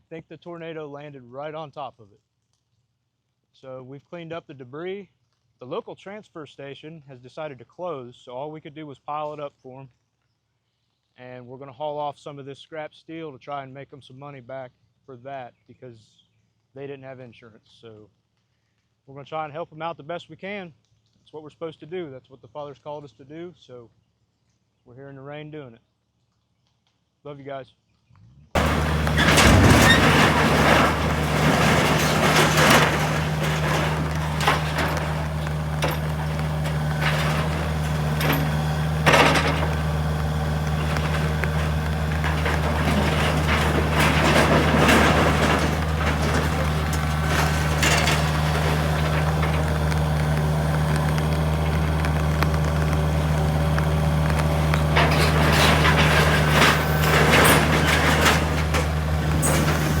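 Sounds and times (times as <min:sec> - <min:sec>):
debris crashing and clattering: 0:28.6 - 1:00.0
truck engine idling: 0:28.6 - 1:00.0.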